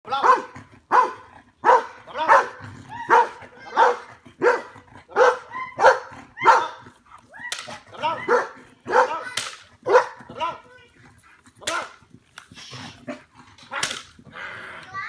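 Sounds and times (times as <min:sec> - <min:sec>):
dog barking loudly: 0:00.1 - 0:06.8, 0:08.0 - 0:10.4.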